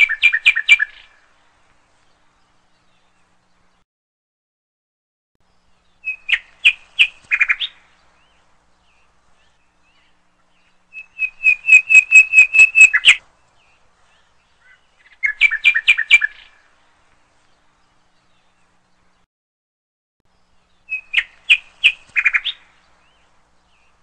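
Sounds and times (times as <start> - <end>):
small bird chirping: 5.4 - 16.6, 20.3 - 24.0.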